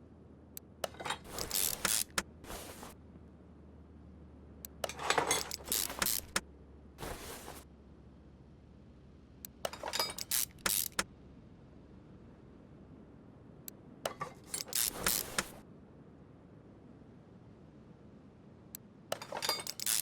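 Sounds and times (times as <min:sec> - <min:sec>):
metal tools clinking: 0:00.8 - 0:02.9, 0:04.8 - 0:06.4, 0:07.0 - 0:07.6, 0:09.7 - 0:11.0, 0:14.1 - 0:15.6, 0:19.1 - 0:20.0.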